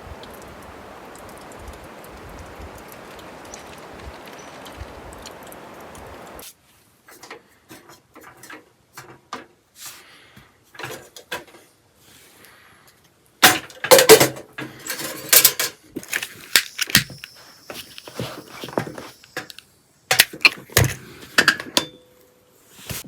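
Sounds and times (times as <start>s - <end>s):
objects tapping and knocking: 13.4s - 22.0s
clattering and clinking: 13.5s - 21.9s.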